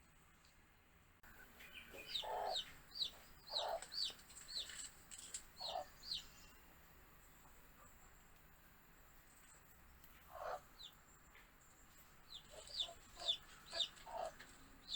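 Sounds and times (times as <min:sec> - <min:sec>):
chicks chirping: 0:01.6 - 0:06.6, 0:10.3 - 0:11.0, 0:12.0 - 0:14.9
lower chick calls: 0:01.8 - 0:04.8, 0:05.6 - 0:06.3, 0:12.3 - 0:14.9.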